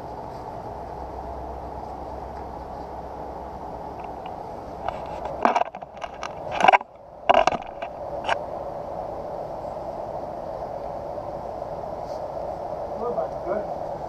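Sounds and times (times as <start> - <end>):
background hum: 0.0 - 14.0
hard objects clattering: 4.0 - 8.4.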